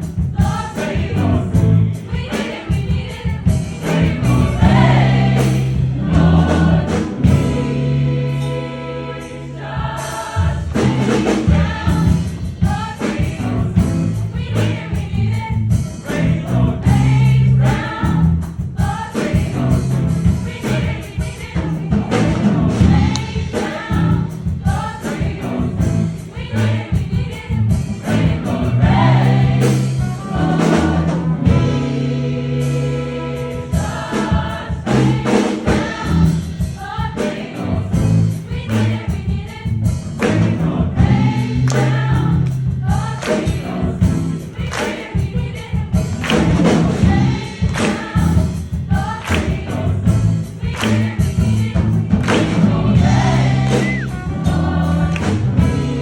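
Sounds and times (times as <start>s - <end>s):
vocal ensemble singing in harmony: 0.0s - 56.0s.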